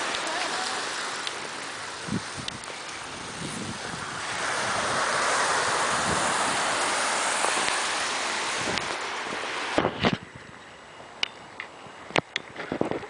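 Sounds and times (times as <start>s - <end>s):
waves washing onto shore: 0.0s - 10.3s.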